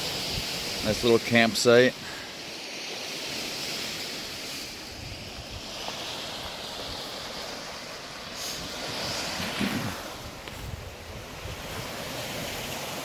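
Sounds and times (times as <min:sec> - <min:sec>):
waves breaking on shore: 0:00.0 - 0:13.0.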